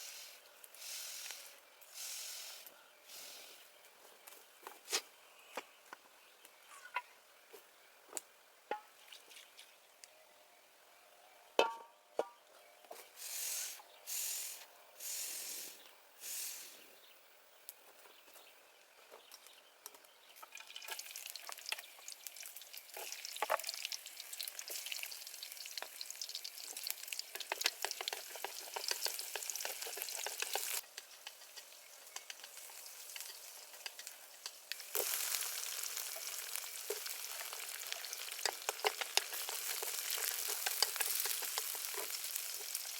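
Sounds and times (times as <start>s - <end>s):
food sizzling in pan: 20.6s - 42.9s.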